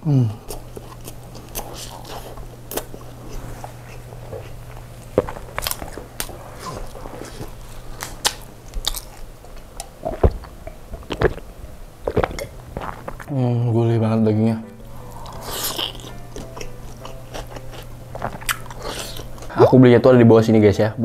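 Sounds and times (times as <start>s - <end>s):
wet chewing and mouth smacks: 0.5s - 13.3s, 15.0s - 19.5s
person gulping a drink: 9.5s - 13.3s.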